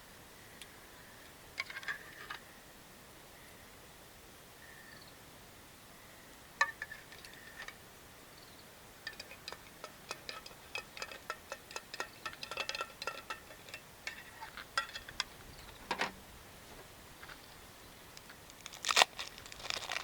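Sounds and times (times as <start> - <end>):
light metal pieces clinking: 9.0 - 16.1.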